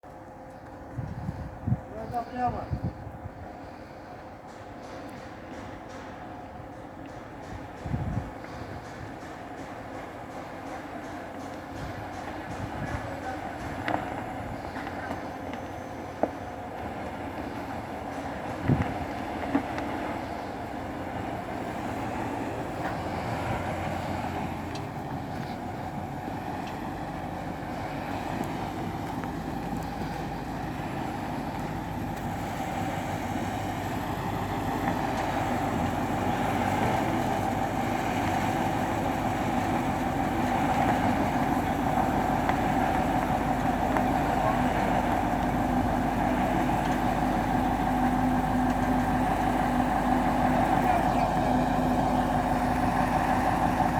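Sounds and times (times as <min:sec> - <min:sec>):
crane engine running: 0:00.1 - 0:53.9
steady whine: 0:11.5 - 0:53.9.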